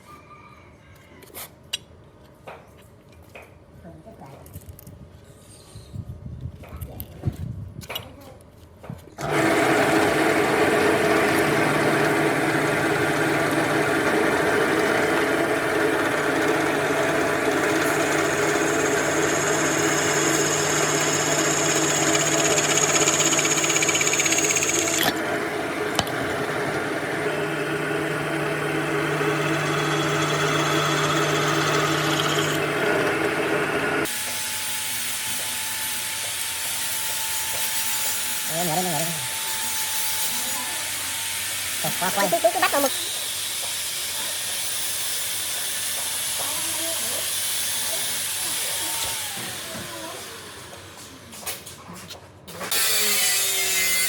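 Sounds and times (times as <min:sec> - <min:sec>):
high tool whine: 0:09.2 - 0:36.0
power tool running: 0:09.2 - 0:51.2, 0:52.6 - 0:54.0.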